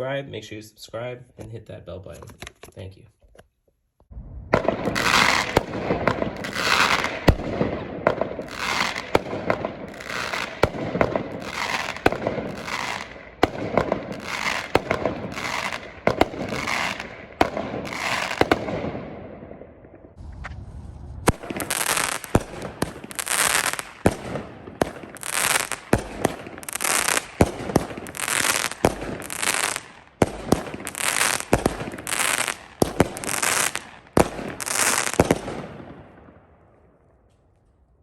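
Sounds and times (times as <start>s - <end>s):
firework bangs: 4.1s - 36.4s
firework crackling and sizzle: 4.2s - 18.8s, 20.1s - 35.7s.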